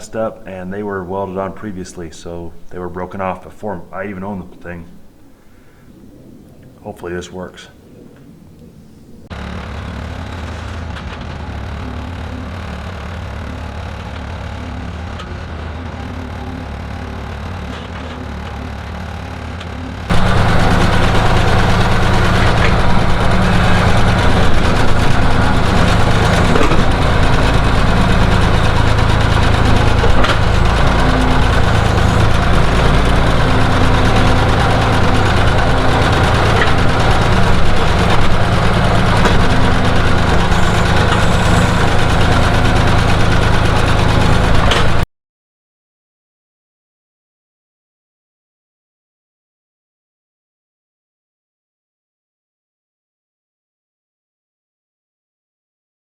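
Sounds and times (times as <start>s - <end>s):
skid steer engine running: 0.0s - 5.8s, 9.3s - 45.0s.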